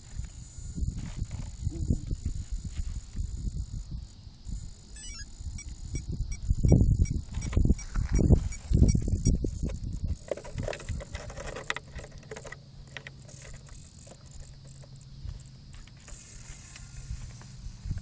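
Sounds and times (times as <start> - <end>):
helicopter rotor buzzing: 4.6 - 9.6.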